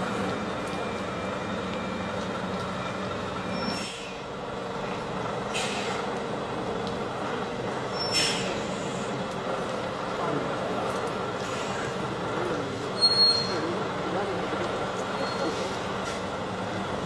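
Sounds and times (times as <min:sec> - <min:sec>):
heavy truck engine running: 0:00.0 - 0:17.0
air hissing: 0:08.1 - 0:09.1.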